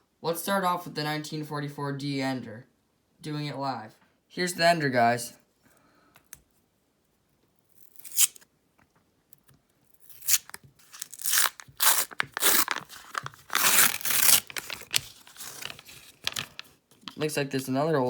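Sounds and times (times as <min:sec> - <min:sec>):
paper wrapper tearing: 0:07.8 - 0:08.4, 0:10.0 - 0:17.2.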